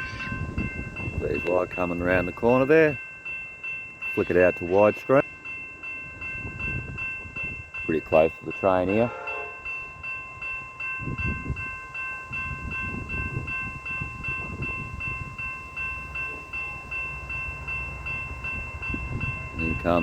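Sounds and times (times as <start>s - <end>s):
freight train rumble: 0.0s - 20.0s
level crossing bell ringing: 0.0s - 20.0s.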